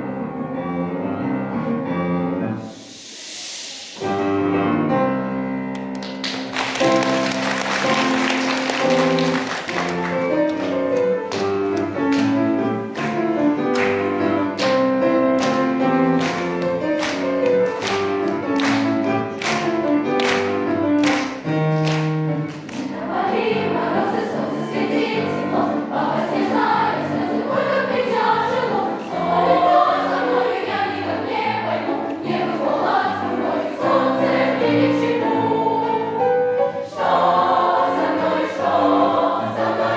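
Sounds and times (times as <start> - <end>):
piano accompaniment: 0.0 - 3.3, 3.9 - 39.9
bright hiss: 2.6 - 4.7
choir singing: 22.7 - 39.9.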